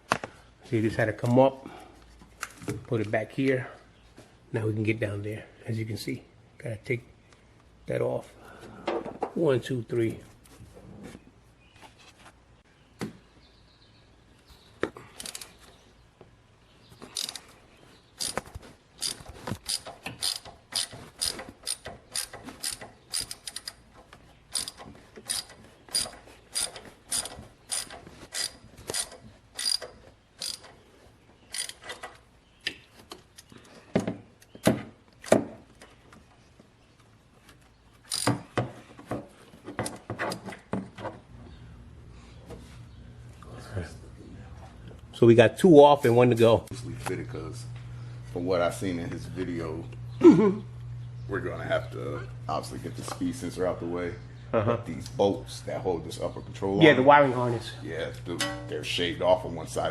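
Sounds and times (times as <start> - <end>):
ratchet wrench clicking: 15.2 - 15.5, 17.2 - 17.4, 19.0 - 23.8, 24.5 - 30.7, 31.5 - 32.0, 38.1 - 38.3.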